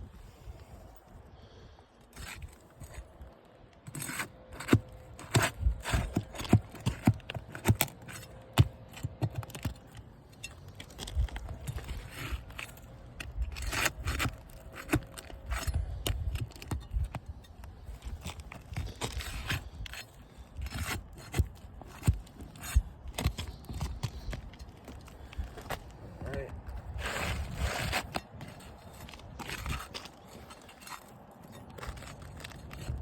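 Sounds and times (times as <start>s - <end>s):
metal bar scraping under shingles: 2.1s - 33.0s.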